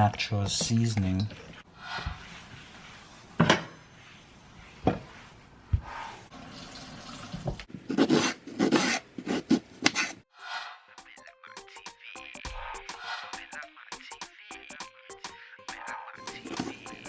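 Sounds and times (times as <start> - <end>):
running water: 6.3 - 7.7
music: 10.3 - 17.0.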